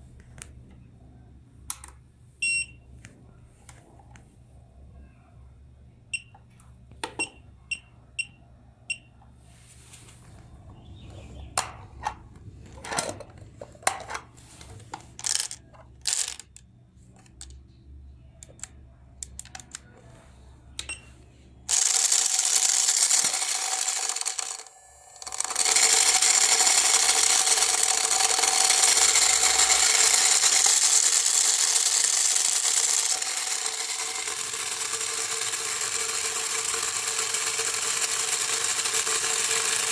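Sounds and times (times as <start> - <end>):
short electronic beeps: 2.4 - 2.8
electric motor and gears whining: 21.7 - 39.9.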